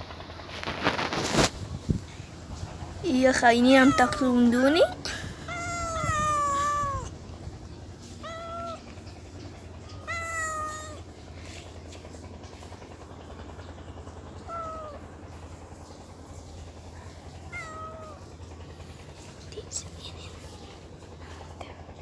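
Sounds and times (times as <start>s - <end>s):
cat meowing: 3.6s - 11.2s, 14.4s - 15.1s, 17.4s - 18.3s.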